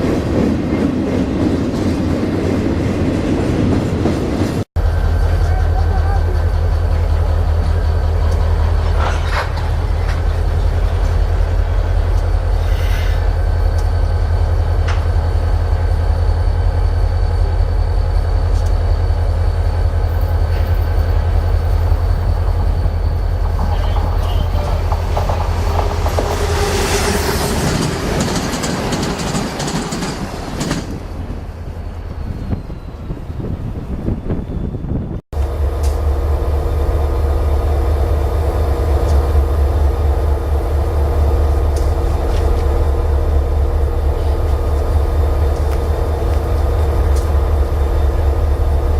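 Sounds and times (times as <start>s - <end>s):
train rumbling past: 0.0s - 48.9s
train wheel clicks: 5.4s - 11.3s, 20.2s - 26.5s, 27.6s - 31.0s.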